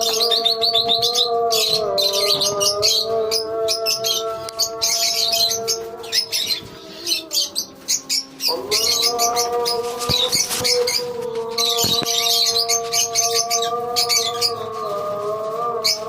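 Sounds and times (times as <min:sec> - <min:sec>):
lovebirds chirping and squawking: 0:00.0 - 0:16.0.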